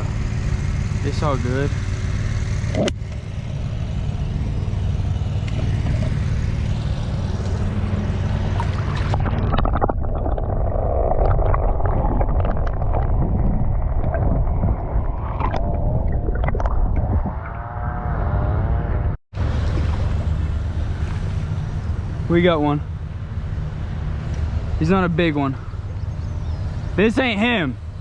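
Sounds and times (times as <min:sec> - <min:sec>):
gurgling river water: 0:05.5 - 0:18.0, 0:19.4 - 0:22.6
wind buffeting microphone: 0:08.4 - 0:17.6.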